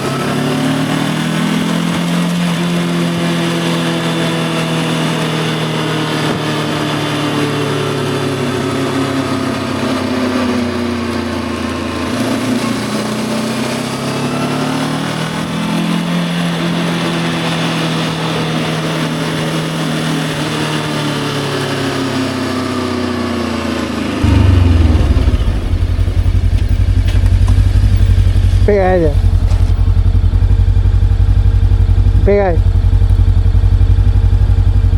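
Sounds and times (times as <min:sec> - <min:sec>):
motorcycle engine running: 0:00.0 - 0:34.9
loud low rumble: 0:24.2 - 0:34.9.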